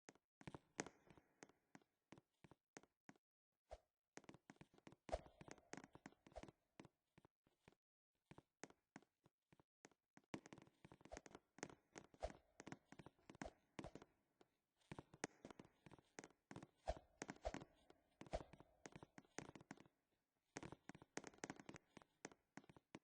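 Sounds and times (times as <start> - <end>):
faint clicks and taps: 20.6 - 23.0.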